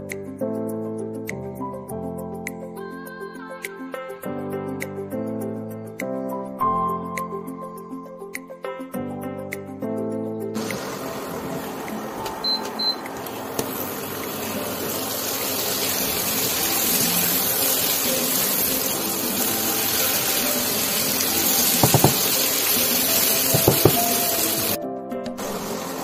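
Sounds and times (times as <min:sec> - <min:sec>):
food sizzling in hot oil: 0:10.6 - 0:24.8, 0:25.4 - 0:26.0
spatula knocking against pan: 0:21.8 - 0:22.4, 0:23.5 - 0:24.2.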